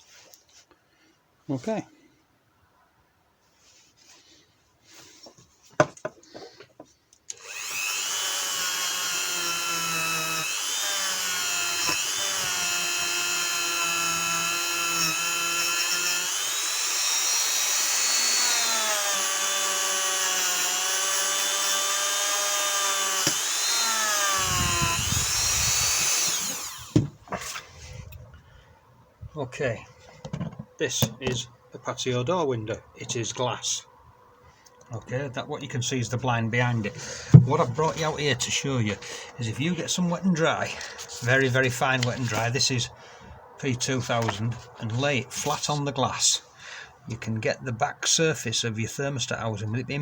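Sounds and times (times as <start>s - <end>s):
rotary tool wire brush whine: 7.3s - 27.9s.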